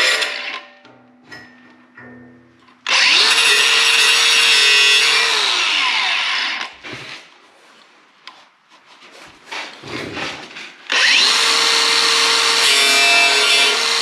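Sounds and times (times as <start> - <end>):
angle grinder grinding steel: 0.0 - 0.7, 2.9 - 6.7, 10.9 - 14.0.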